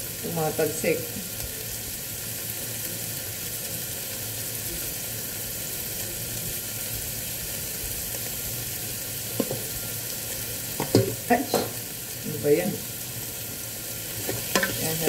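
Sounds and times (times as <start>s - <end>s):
onion and tomato sizzling: 0.0s - 15.0s.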